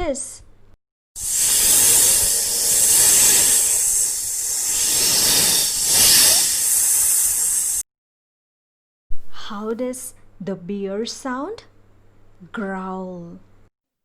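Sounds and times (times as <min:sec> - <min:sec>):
snake hissing: 0:01.2 - 0:07.8.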